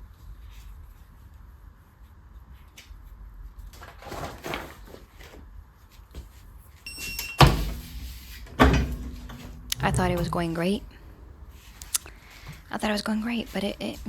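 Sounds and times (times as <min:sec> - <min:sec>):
loud thump: 0:08.4 - 0:11.5.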